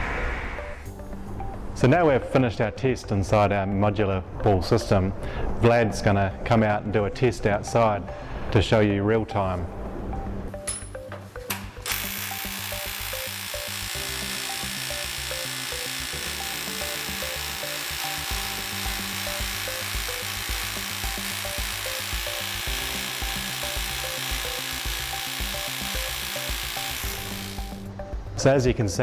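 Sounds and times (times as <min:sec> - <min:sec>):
background music: 0:00.2 - 0:29.0
power drill grinding: 0:11.8 - 0:28.0.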